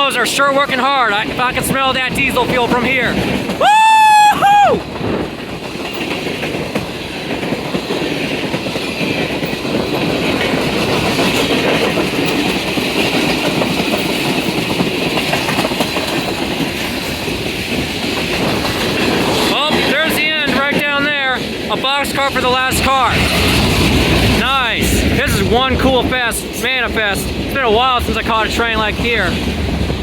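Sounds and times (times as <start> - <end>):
freight train wheels rushing: 0.0 - 30.0
wheels clicking over rail joints: 0.0 - 30.0.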